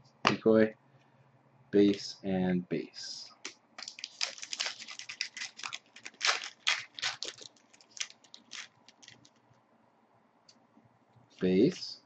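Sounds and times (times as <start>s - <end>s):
cards being handled: 3.4s - 9.4s
card pack wrapper tearing and crinkling: 3.8s - 9.4s.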